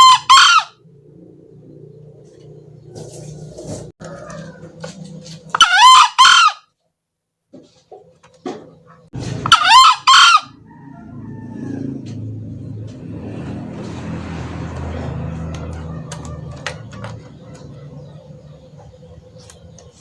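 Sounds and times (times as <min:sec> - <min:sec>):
junglefowl crowing: 0:00.0 - 0:00.9, 0:04.0 - 0:06.7, 0:09.2 - 0:12.4, 0:14.9 - 0:19.1.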